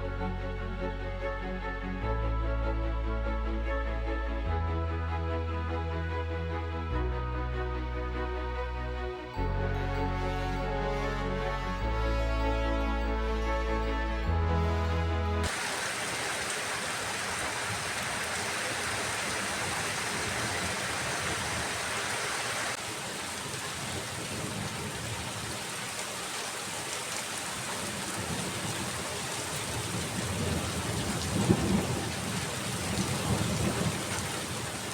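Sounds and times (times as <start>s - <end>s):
thunder rumbling: 15.5s - 22.8s, 27.8s - 34.9s
steady rain: 15.5s - 34.9s.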